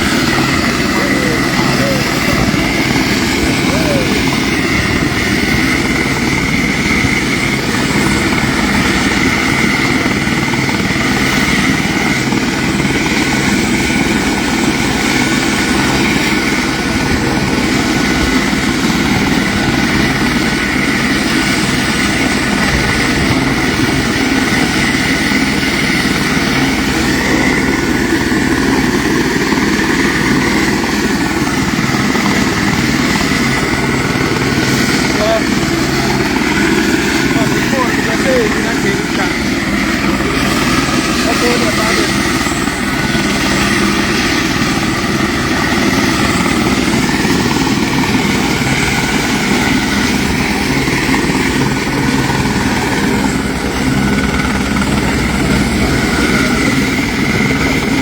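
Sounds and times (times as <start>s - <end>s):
engine running with high whine: 31.1s - 58.0s.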